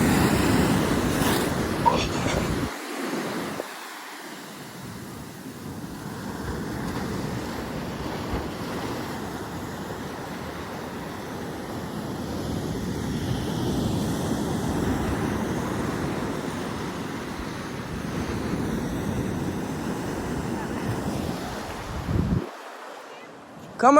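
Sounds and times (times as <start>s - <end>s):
ocean waves breaking: 0.0s - 23.9s
wind buffeting microphone: 18.0s - 22.5s.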